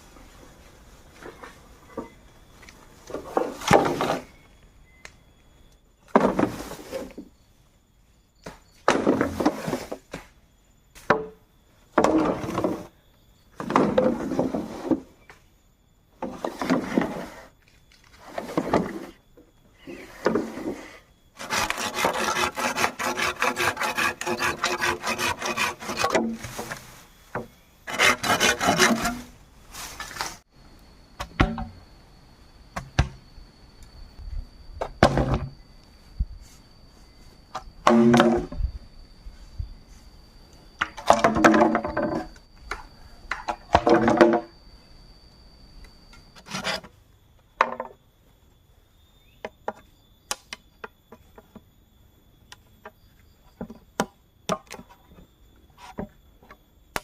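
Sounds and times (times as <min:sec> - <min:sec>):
hand tool strokes on bamboo: 0:19.8 - 0:30.5.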